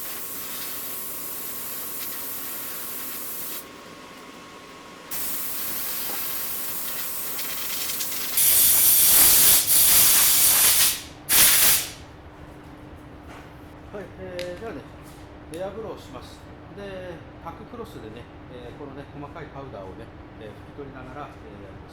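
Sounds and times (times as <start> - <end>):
air blow gun hissing: 0.0 - 3.7, 5.1 - 12.0
loud air blasts: 0.0 - 3.7, 5.1 - 12.0.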